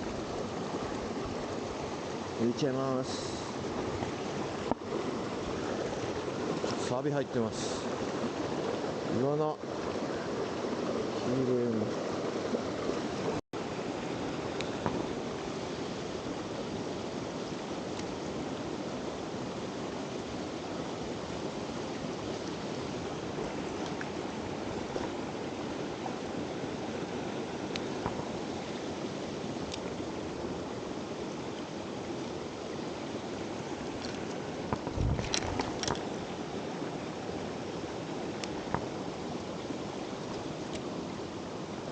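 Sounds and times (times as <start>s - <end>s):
water rushing over rocks: 0.0s - 41.9s.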